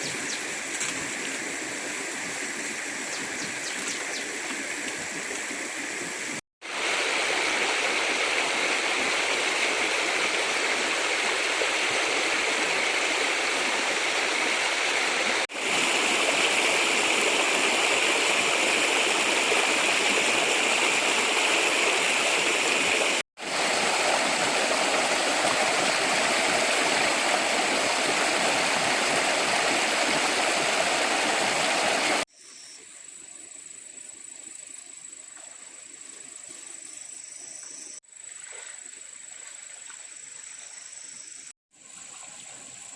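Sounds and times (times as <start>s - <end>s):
stream rushing over rocks: 0.0s - 32.3s.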